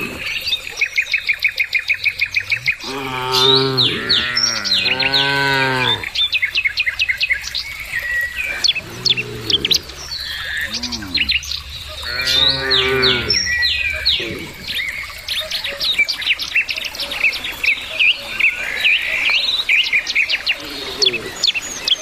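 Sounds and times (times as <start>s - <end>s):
cows mooing: 0.0s - 0.3s, 2.5s - 6.2s, 8.4s - 14.8s
small birds chirping: 0.0s - 22.0s.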